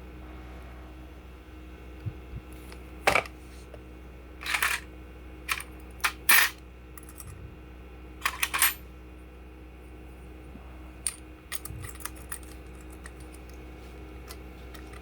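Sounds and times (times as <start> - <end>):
small hard parts clinking: 4.4 - 4.9, 8.2 - 8.8, 11.1 - 13.6, 14.2 - 15.0.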